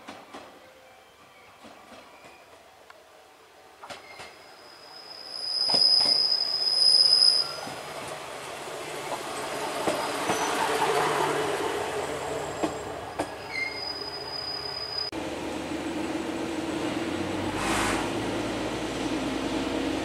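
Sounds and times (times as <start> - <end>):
railcar diesel engine rumble: 0.0 - 20.0
high wheel squeal: 3.9 - 7.9, 9.9 - 11.2, 12.0 - 15.1.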